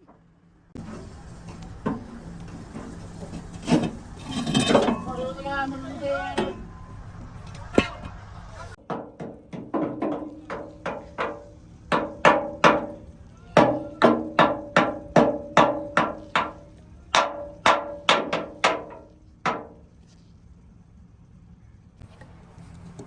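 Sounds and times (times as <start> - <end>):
hammer striking steel: 8.8 - 19.8.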